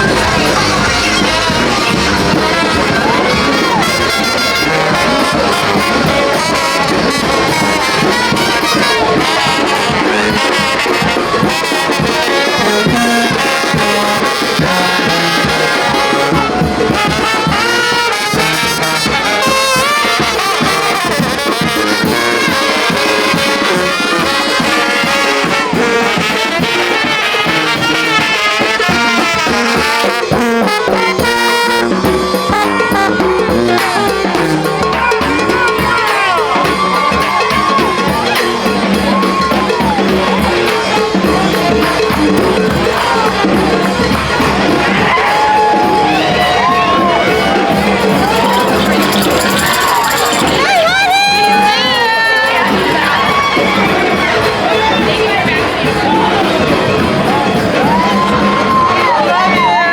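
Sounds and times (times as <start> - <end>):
marching brass band playing: 0.0 - 59.9.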